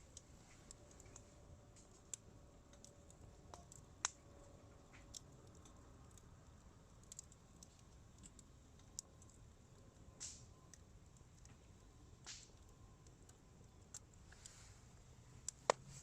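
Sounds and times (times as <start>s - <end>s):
campfire wood crackling: 0.0s - 16.0s
small sharp pops: 10.2s - 10.5s, 12.2s - 12.6s.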